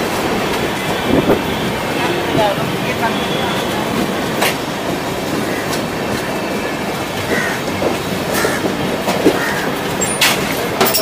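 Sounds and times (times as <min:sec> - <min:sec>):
train wheels rumbling on rails: 0:00.0 - 0:11.0
rail joint clicks: 0:02.7 - 0:11.0.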